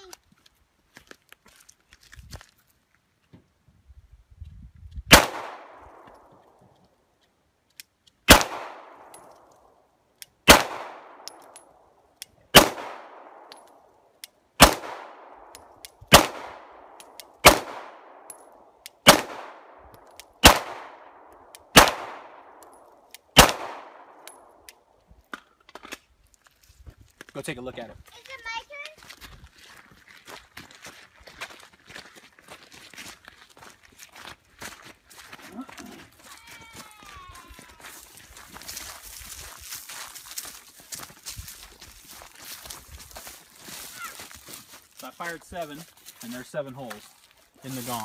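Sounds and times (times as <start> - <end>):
pistol shots: 5.1 - 6.0, 8.3 - 9.3, 10.4 - 11.6, 12.5 - 13.6, 14.6 - 15.5, 16.1 - 18.4, 19.0 - 19.8, 20.4 - 24.5.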